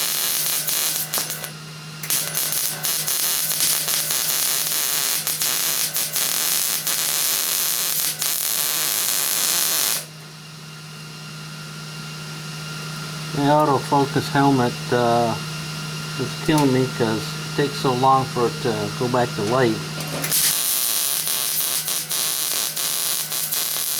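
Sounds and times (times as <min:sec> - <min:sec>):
welder crackling and popping: 0:00.0 - 0:10.3, 0:17.6 - 0:23.9
low steady hum: 0:13.0 - 0:20.3.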